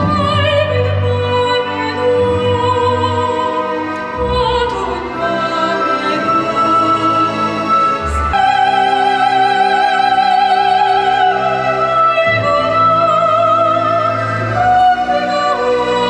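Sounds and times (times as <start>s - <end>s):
classical voice singing: 0.0s - 16.0s
instrumental accompaniment: 0.0s - 16.0s.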